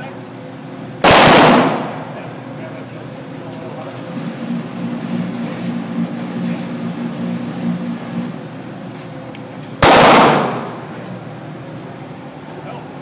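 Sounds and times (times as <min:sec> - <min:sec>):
steady low hum: 0:00.0 - 0:13.0
pistol shot: 0:01.0 - 0:02.0, 0:09.8 - 0:10.7.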